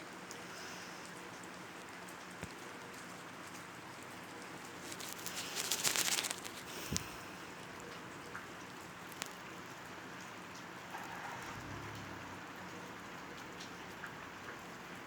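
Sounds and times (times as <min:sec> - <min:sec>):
rain-like hiss: 0:00.0 - 0:15.0.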